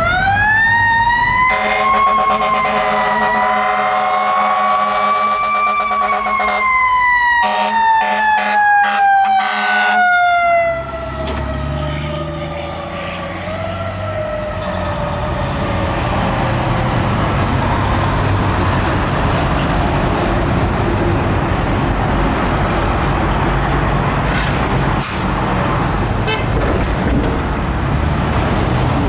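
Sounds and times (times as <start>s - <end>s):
road noise: 0.0s - 29.0s
truck engine running: 14.9s - 29.0s.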